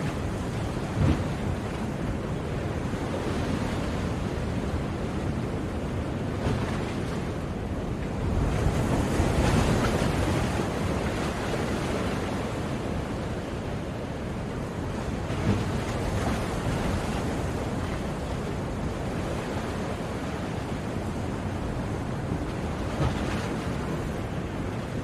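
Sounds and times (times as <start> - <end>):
sea waves breaking on shore: 0.0 - 25.0.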